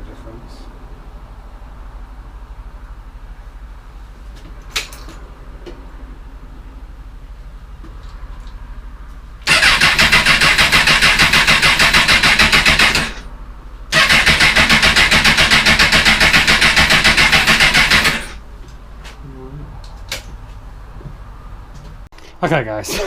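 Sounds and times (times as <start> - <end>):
motorcycle engine cranking on starter: 9.4 - 13.2, 13.9 - 18.4.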